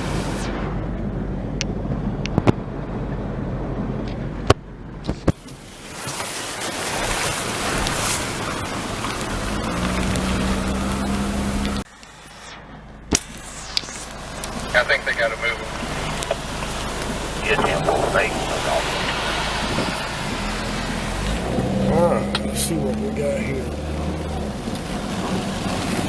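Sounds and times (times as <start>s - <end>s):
heavy rain and floodwater rushing: 0.0s - 0.4s, 5.3s - 11.9s, 13.2s - 26.0s.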